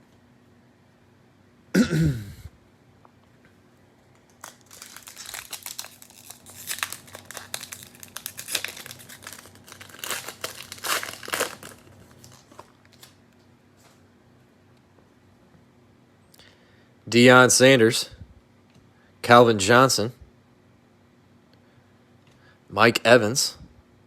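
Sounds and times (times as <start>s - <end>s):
cellophane wrapper crinkling and tearing: 4.1s - 13.2s.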